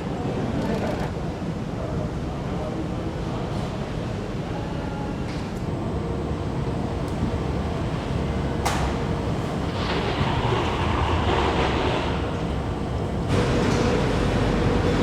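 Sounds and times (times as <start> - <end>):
machinery rumble: 5.6 - 15.0.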